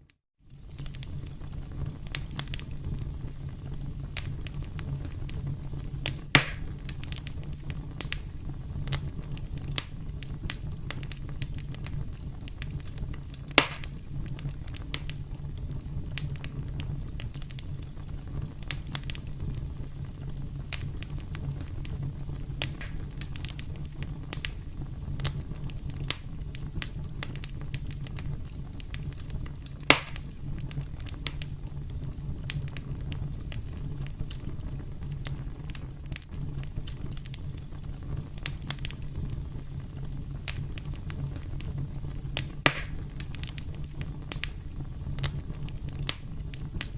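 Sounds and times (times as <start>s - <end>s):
campfire crackling: 0.4s - 46.9s
sharp loud fire pops: 6.0s - 7.0s, 13.5s - 14.0s, 22.6s - 23.5s, 29.9s - 30.3s, 42.6s - 43.4s.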